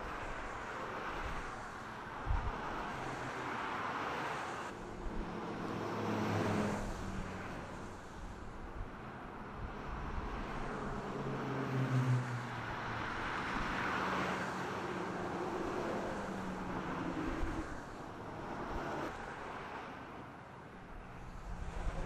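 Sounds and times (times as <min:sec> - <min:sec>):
freeway traffic passing: 0:00.0 - 0:22.0.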